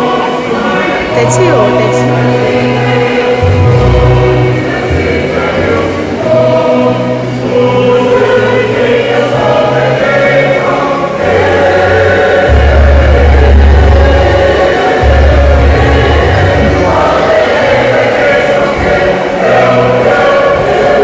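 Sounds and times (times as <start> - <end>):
choir singing gospel: 0.0 - 21.0
deep held bass notes: 1.1 - 7.8, 11.3 - 20.8.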